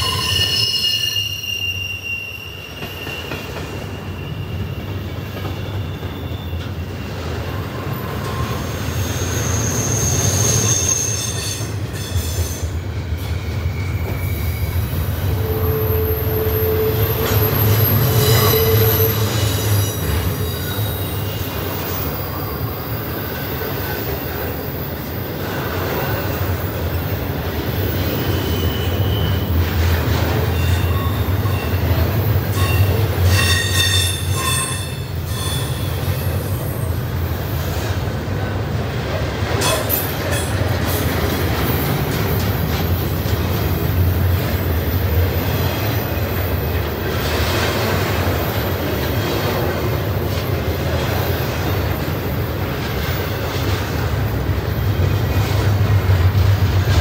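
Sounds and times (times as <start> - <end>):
high-pitched wheel squeals: 0.0 - 25.0, 27.8 - 29.7, 30.3 - 37.0
freight train rumbling past: 0.0 - 57.0.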